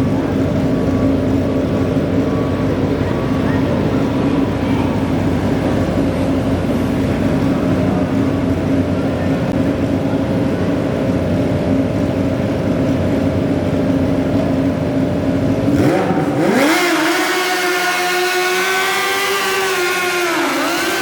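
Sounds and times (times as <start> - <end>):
tractor engine revving: 15.4 - 21.0.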